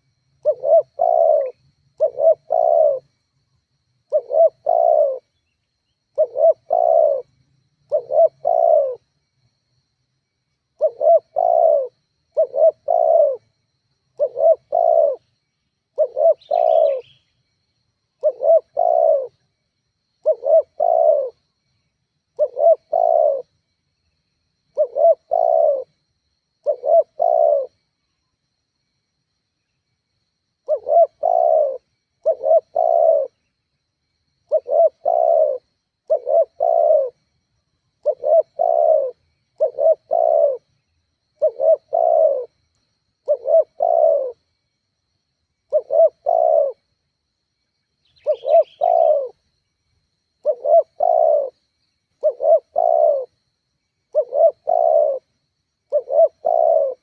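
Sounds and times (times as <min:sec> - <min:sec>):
dove cooing: 0:00.0 - 0:03.1, 0:04.1 - 0:05.4, 0:06.1 - 0:09.1, 0:10.8 - 0:13.5, 0:14.1 - 0:15.3, 0:15.9 - 0:17.2, 0:18.2 - 0:19.4, 0:20.2 - 0:21.4, 0:22.4 - 0:23.6, 0:24.7 - 0:26.0, 0:26.6 - 0:27.8, 0:30.6 - 0:33.5, 0:34.5 - 0:37.2, 0:38.0 - 0:40.8, 0:41.4 - 0:42.6, 0:43.2 - 0:44.4, 0:45.7 - 0:46.9, 0:48.1 - 0:49.4, 0:50.4 - 0:51.6, 0:52.2 - 0:53.4, 0:54.1 - 0:55.3, 0:55.9 - 0:57.0
faint high chirp: 0:47.9 - 0:49.7.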